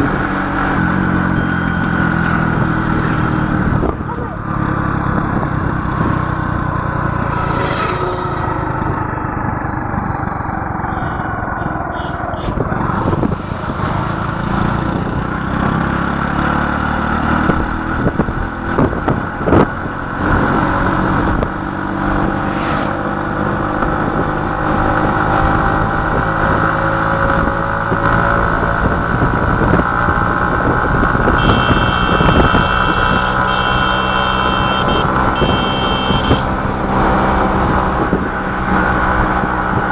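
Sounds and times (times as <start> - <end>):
vehicle engine running: 30.3 - 38.8
high beeping pulses: 31.4 - 36.6.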